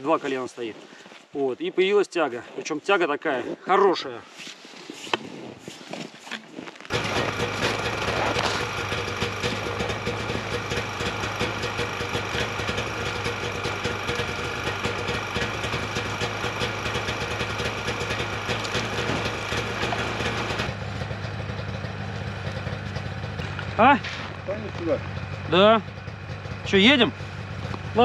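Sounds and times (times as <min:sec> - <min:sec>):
snowmobile engine idling: 0:06.8 - 0:28.0.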